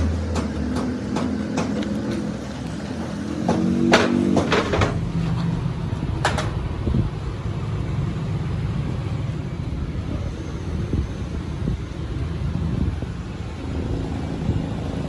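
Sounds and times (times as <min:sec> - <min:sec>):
sharp knocks: 0:00.0 - 0:02.4, 0:03.0 - 0:05.1.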